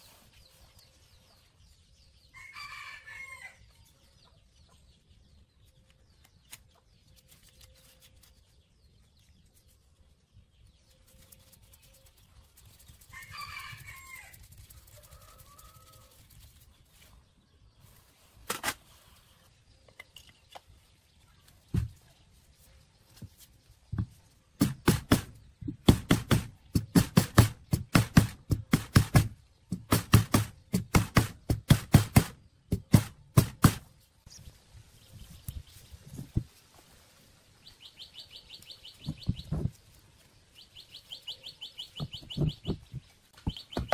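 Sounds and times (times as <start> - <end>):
rooster crowing: 2.3 - 3.6
sharp knocks: 24.6 - 33.8.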